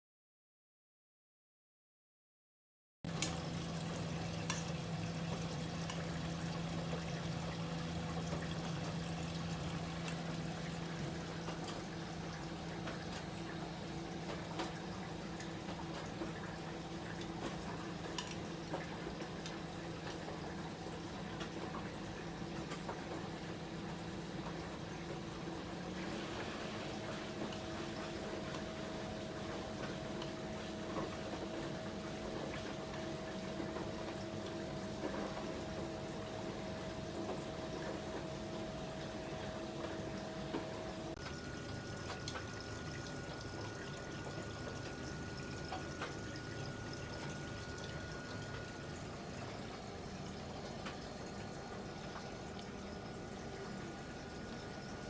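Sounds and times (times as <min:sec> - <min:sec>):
washing machine running: 0:03.1 - 0:55.0
water sloshing in drum: 0:03.4 - 0:17.6.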